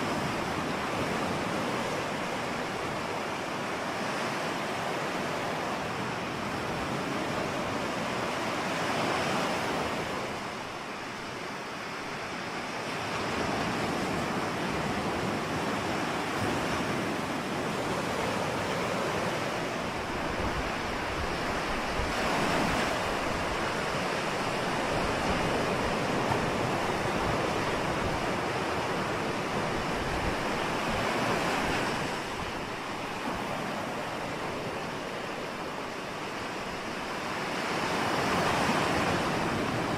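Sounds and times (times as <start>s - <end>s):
ocean waves washing onto shore: 0.0s - 39.9s.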